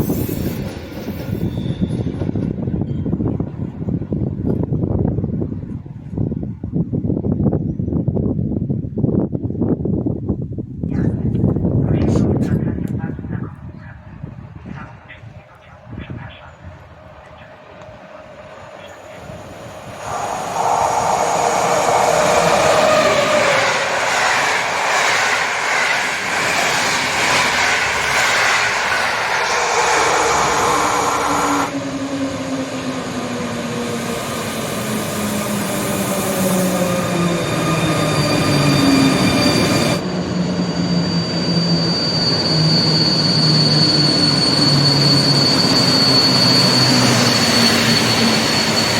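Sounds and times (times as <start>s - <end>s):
train electric motor whine: 16.8s - 48.9s
thin high steady tone: 18.8s - 23.4s.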